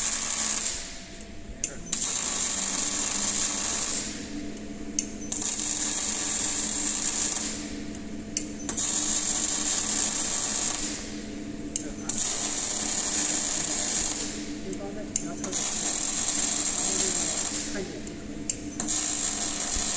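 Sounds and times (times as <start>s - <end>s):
loud machine hiss: 0.0s - 1.0s, 1.8s - 4.2s, 8.7s - 11.0s, 12.0s - 14.4s, 15.5s - 17.9s, 18.8s - 19.9s
steady low machinery hum: 0.0s - 19.9s.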